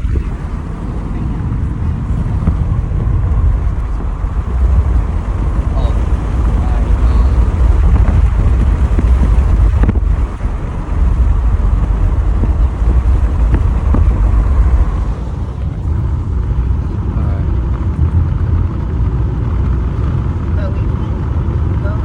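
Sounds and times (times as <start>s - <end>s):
car engine and road noise: 0.0s - 22.0s
wind buffeting: 0.0s - 22.0s.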